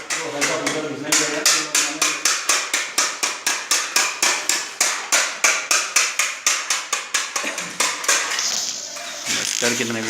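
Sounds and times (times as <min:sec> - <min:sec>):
sandpaper scratching by hand: 0:08.1 - 0:10.0.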